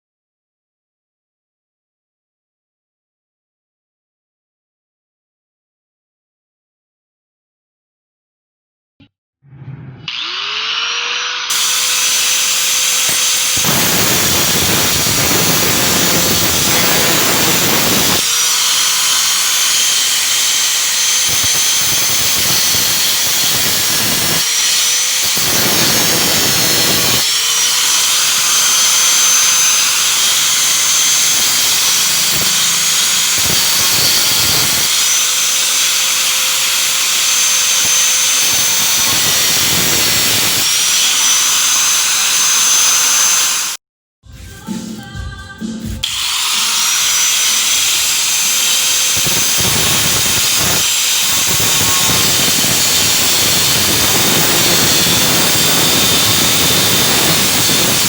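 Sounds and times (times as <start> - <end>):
harsh grinding noise: 9.6 - 43.8, 46.0 - 58.0
power tool motor whine: 10.1 - 43.8, 46.0 - 58.0.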